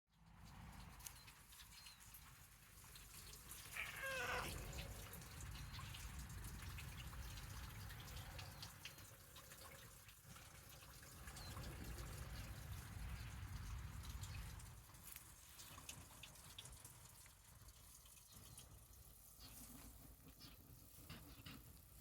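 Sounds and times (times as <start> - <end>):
cat meowing: 3.7 - 5.0.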